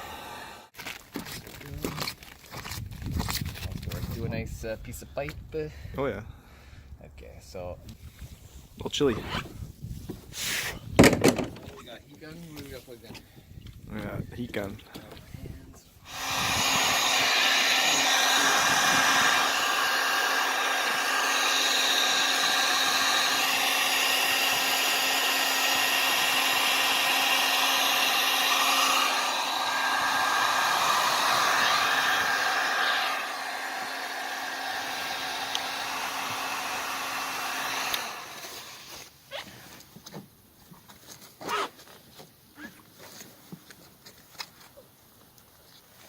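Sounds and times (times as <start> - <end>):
heat gun blowing: 0.0 - 0.7, 10.3 - 11.5, 16.0 - 39.1.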